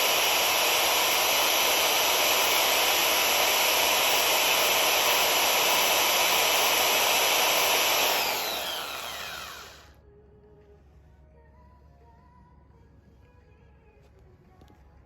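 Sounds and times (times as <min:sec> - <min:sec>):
chainsaw winding down: 0:00.0 - 0:09.9
electric chainsaw running: 0:00.0 - 0:09.9.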